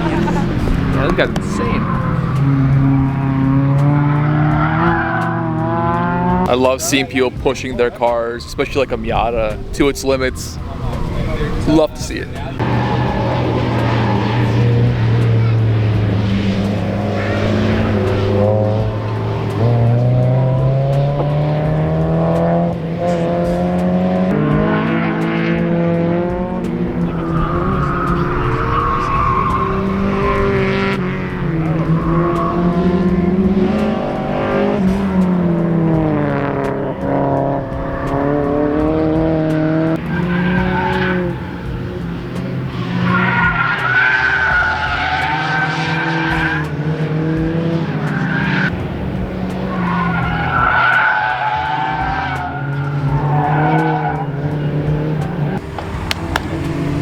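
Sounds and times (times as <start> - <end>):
tyres squealing: 0.0 - 3.7, 6.5 - 20.2, 26.7 - 36.0, 39.8 - 48.8, 49.6 - 57.0
car engine revving: 0.0 - 57.0.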